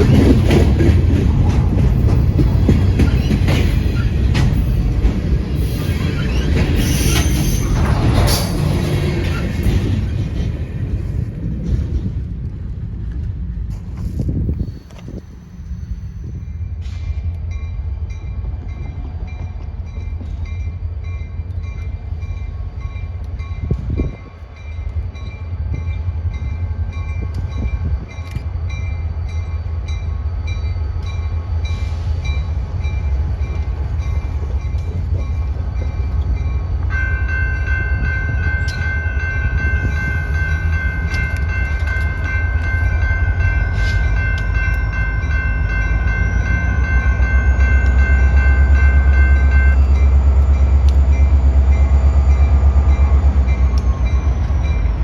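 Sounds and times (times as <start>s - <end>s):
train rumbling: 0.0s - 55.0s
steady high-pitched tone: 32.4s - 55.0s.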